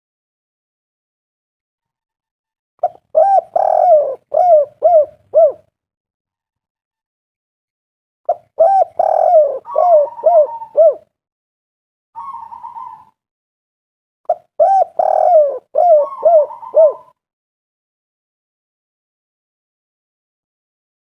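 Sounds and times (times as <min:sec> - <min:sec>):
dove cooing: 0:02.8 - 0:05.7, 0:08.3 - 0:11.1, 0:12.2 - 0:13.2, 0:14.3 - 0:17.2.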